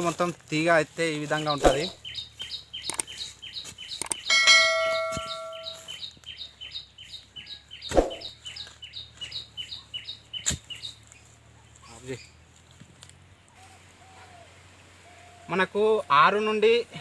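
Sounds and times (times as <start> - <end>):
high chirp: 1.4 - 11.0
crowbar striking with metallic ring: 4.3 - 5.8.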